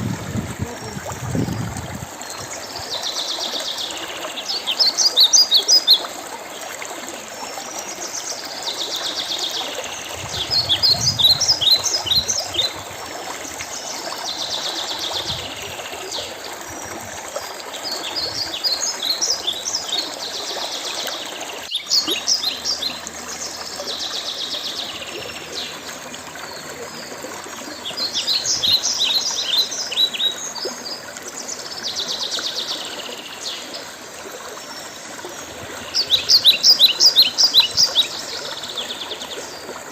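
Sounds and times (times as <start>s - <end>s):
stream water running: 0.0s - 39.9s
songbirds chirping: 17.6s - 39.9s.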